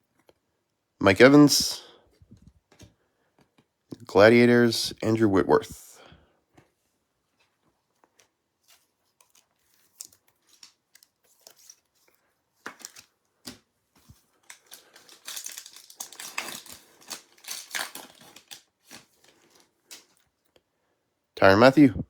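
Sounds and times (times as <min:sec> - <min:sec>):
wrapper clicks and rustles: 0:07.9 - 0:20.6
wrapper crinkling: 0:09.1 - 0:20.2.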